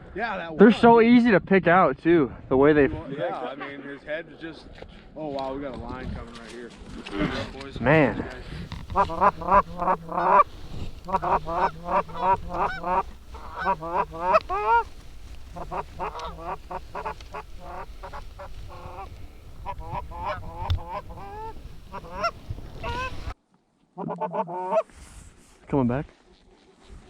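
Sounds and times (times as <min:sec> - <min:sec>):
geese honking: 0:08.7 - 0:23.4.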